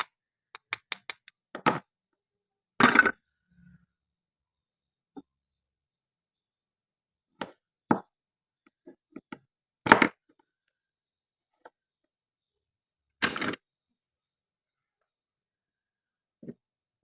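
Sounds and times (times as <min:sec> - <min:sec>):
toy fruit clicks and taps: 0:00.0 - 0:01.4.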